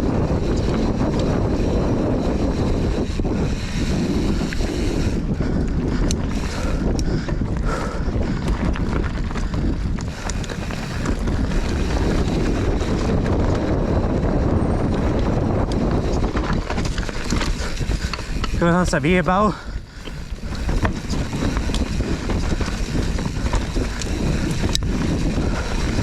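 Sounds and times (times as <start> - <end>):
bike clicks and rattles: 0.0 - 26.0
wind buffeting microphone: 0.0 - 26.0
tyres rumbling over dirt: 7.3 - 26.0.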